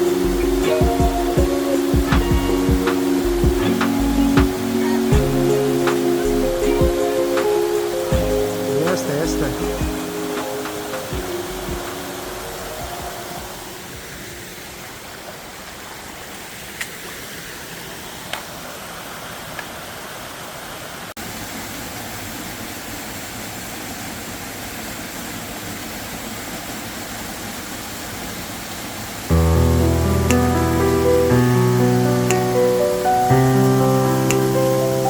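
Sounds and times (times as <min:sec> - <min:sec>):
loud music: 0:00.0 - 0:13.5
waterfall rushing: 0:00.0 - 0:35.0.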